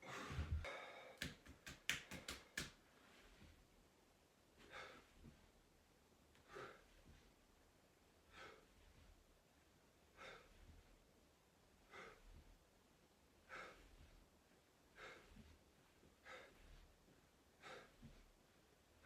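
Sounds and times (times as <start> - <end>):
person breathing hard: 0.0 - 1.6, 4.6 - 5.4, 6.4 - 7.2, 8.2 - 9.1, 10.1 - 10.9, 11.8 - 12.5, 13.4 - 14.2, 14.9 - 16.9, 17.6 - 18.2.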